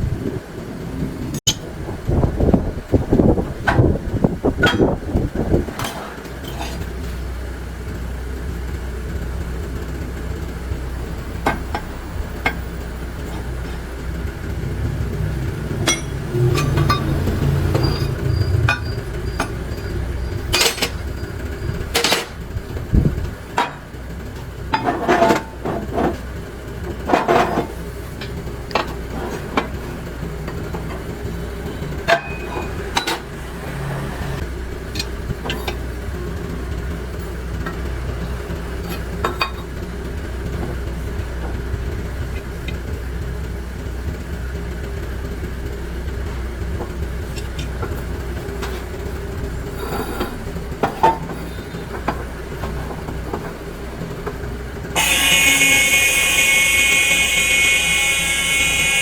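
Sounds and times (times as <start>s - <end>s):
metal clinks and knocks: 15.8s - 22.4s.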